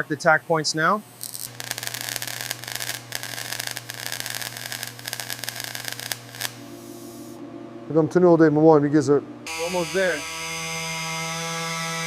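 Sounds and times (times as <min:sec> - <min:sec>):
welding crackling hiss: 0:00.0 - 0:07.4.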